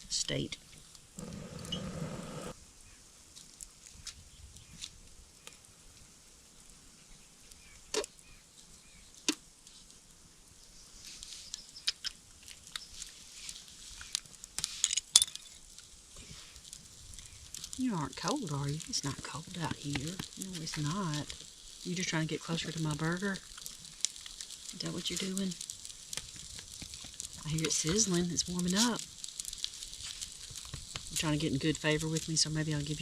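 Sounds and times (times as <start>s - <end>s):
burning wood popping: 0.0s - 33.0s
campfire crackling: 0.0s - 33.0s
burger sizzling on grill: 15.5s - 33.0s.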